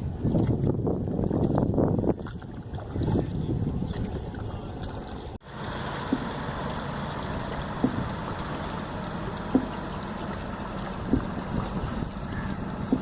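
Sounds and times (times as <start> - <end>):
water washing against canoe: 0.1 - 13.0
oar knocking: 7.8 - 8.1, 9.3 - 9.9, 10.8 - 13.0.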